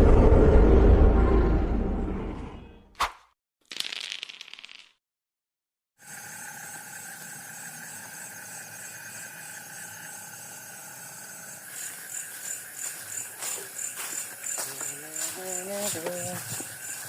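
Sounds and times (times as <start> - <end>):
crickets trilling: 6.0 - 17.0
fast pulsing insect chirp: 6.0 - 17.0.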